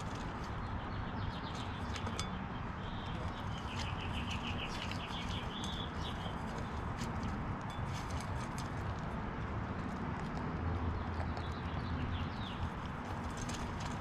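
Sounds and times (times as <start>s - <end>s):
small birds chirping: 0.0s - 7.4s, 10.8s - 14.0s.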